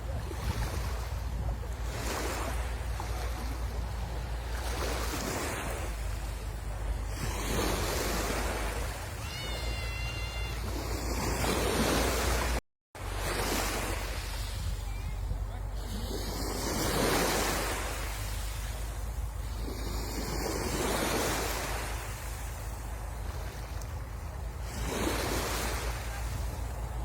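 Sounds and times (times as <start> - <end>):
sea waves breaking: 0.0 - 27.0
wind rumble on microphone: 0.0 - 27.0
high whistle-like call: 9.2 - 10.8.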